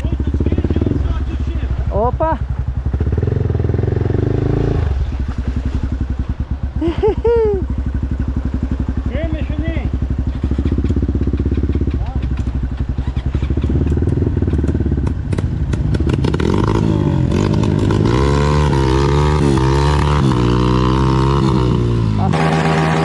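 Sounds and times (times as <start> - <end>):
dirt bike engine revving: 0.0 - 23.0
bike clatter: 10.2 - 16.2.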